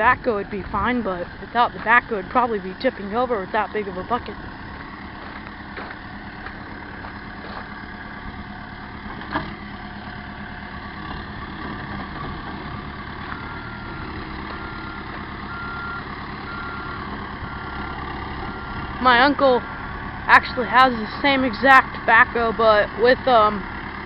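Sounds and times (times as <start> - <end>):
diesel engine running: 0.0 - 24.0
reversing alarm beeping: 13.3 - 19.4, 20.3 - 21.2.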